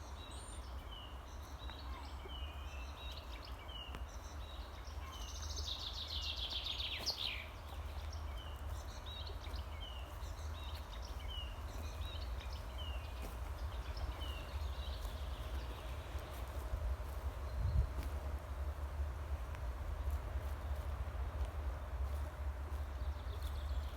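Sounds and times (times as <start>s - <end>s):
songbird trill: 0.0s - 18.2s
steady low rumble: 6.8s - 23.9s.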